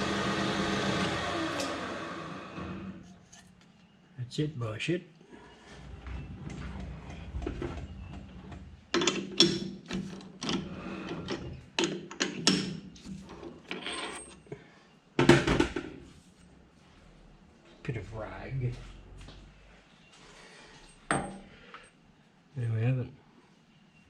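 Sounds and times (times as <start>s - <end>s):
metal parts and tools clanking: 8.9s - 14.5s.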